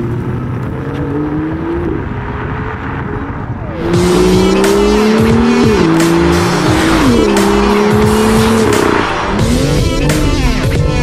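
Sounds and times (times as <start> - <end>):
car engine accelerating: 0.0 - 11.0
music: 3.7 - 11.0.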